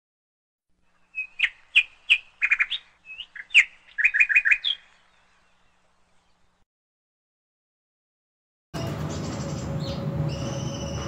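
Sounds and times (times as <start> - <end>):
bird singing chirps and whistles: 1.0 - 5.7, 9.1 - 11.0.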